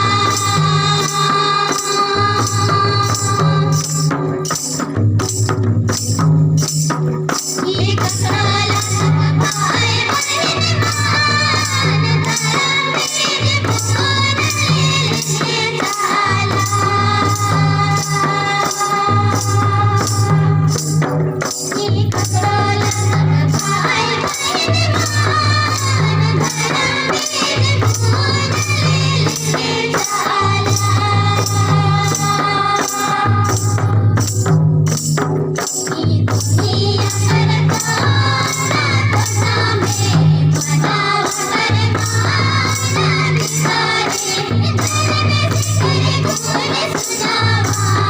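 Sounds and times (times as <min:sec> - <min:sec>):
person singing a melody: 0:00.0 - 0:04.1
high percussion strokes: 0:00.0 - 0:48.0.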